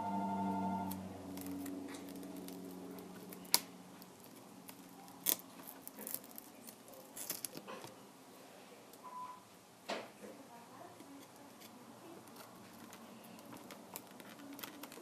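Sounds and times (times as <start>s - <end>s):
low hum: 0.0s - 4.0s.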